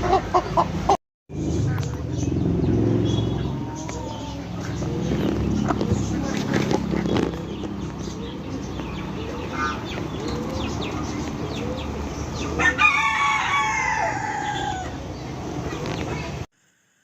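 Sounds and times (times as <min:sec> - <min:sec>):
rooster crowing: 0:12.5 - 0:15.1.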